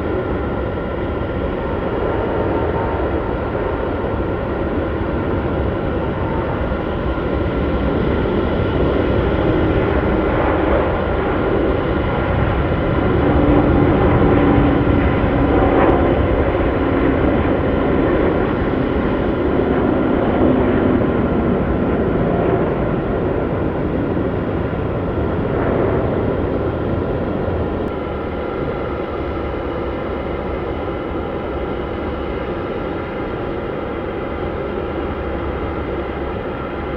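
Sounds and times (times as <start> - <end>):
airliner engines roaring: 0.0 - 36.9.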